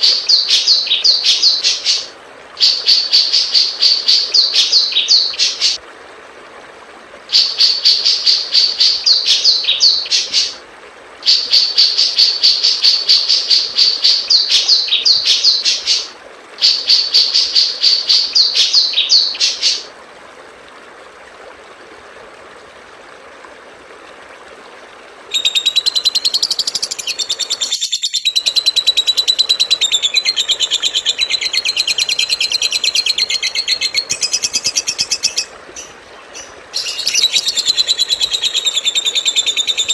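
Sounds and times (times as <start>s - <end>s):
continuous fast bird trill: 25.3s - 39.9s
songbird chattering song: 25.3s - 39.9s.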